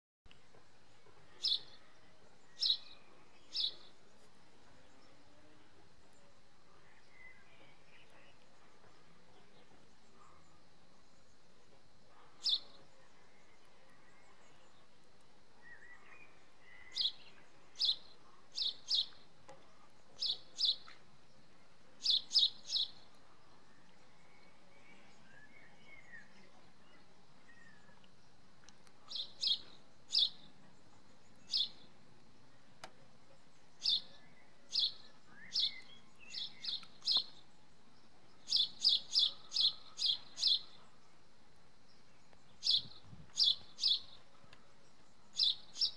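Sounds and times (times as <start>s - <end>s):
faint bird twittering: 0.9s - 8.7s, 12.0s - 15.0s, 15.6s - 28.3s, 29.0s - 32.0s, 33.4s - 41.0s, 41.8s - 45.9s
small bird sharp chirps: 1.3s - 1.9s, 12.3s - 12.8s, 15.6s - 19.2s, 20.2s - 21.0s, 22.0s - 23.1s, 29.0s - 30.5s, 31.4s - 31.9s, 33.8s - 37.5s, 38.4s - 40.8s, 42.6s - 44.2s, 45.3s - 45.9s.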